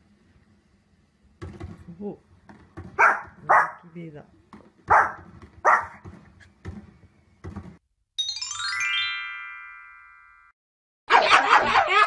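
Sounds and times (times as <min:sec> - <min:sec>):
small dog barking: 0:03.0 - 0:03.9, 0:04.9 - 0:06.0.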